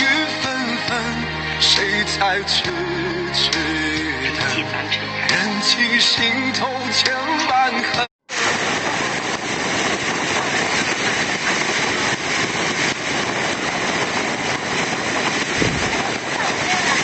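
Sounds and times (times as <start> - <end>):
strong wind: 8.2 - 17.0
heavy rain: 8.3 - 17.0.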